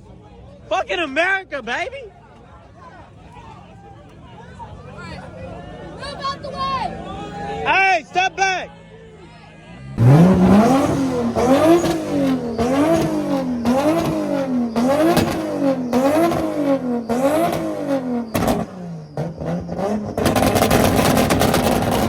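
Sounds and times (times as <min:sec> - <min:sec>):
car engine revving: 0:09.7 - 0:22.0.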